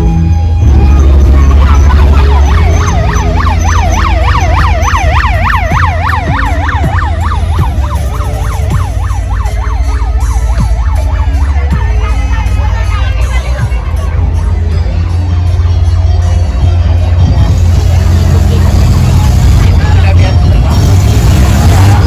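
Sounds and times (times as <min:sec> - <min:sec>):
heavy deep bass: 0:00.0 - 0:22.0
electronic siren warbling: 0:00.5 - 0:12.6.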